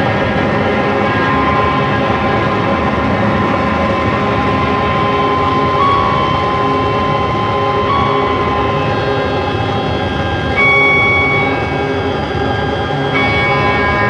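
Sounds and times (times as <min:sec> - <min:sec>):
harsh noise music: 0:00.4 - 0:14.0
thin held high tone: 0:04.2 - 0:14.0.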